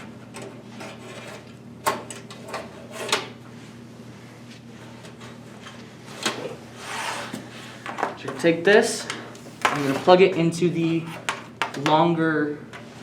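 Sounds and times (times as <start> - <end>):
drive trays scraping: 9.6 - 10.2.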